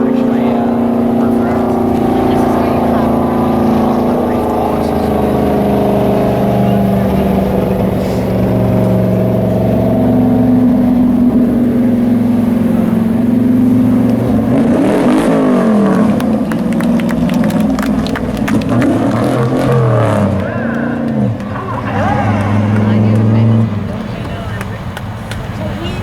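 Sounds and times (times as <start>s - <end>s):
race truck engines: 0.0s - 26.0s
trucks passing by: 0.0s - 26.0s.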